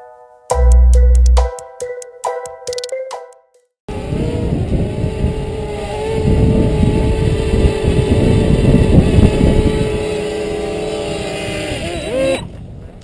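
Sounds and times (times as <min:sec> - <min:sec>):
wind buffeting microphone: 0:04.0 - 0:13.0.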